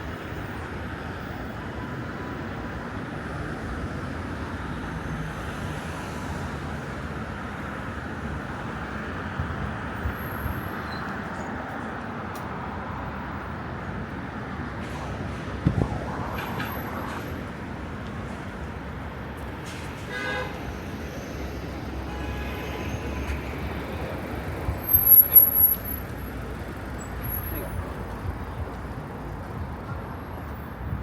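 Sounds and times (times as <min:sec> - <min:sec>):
vehicles passing: 0:12.6 - 0:22.1.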